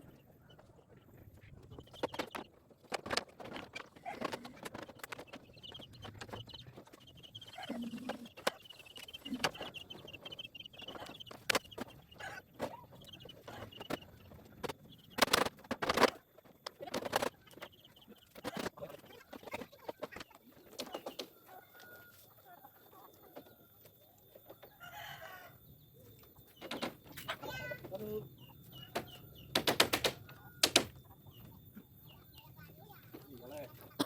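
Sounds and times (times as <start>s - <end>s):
knocks and clatter of building work: 1.6s - 10.3s, 10.9s - 21.4s, 26.5s - 31.5s.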